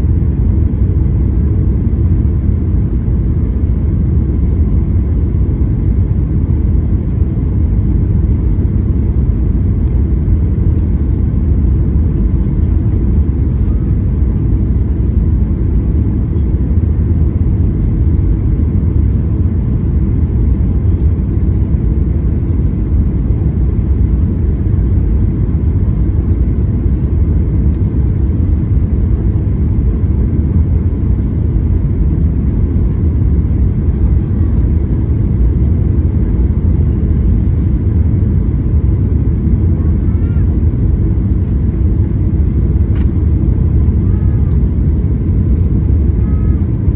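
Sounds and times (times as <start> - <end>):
airliner cabin engine rumble: 0.0 - 46.9.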